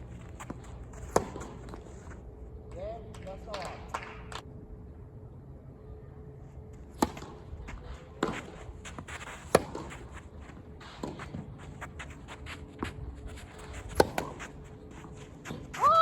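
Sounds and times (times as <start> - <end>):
tennis ball bouncing on court: 0.4 - 1.7, 9.5 - 9.9, 13.9 - 14.4
tennis ball hitting racket: 0.4 - 1.7, 8.2 - 10.0, 13.9 - 14.6.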